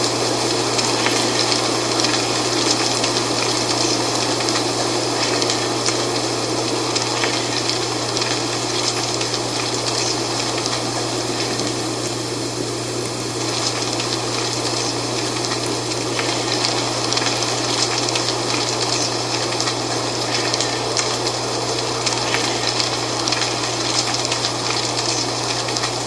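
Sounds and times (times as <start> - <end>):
dry leaves rustling: 13.4 - 26.0.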